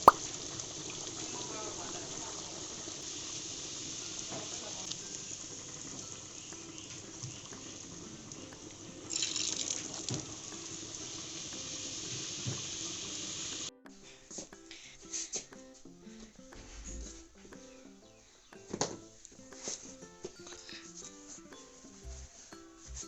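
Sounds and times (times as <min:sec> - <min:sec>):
water splash: 0:00.0 - 0:00.2
tap water running into sink: 0:02.8 - 0:13.7.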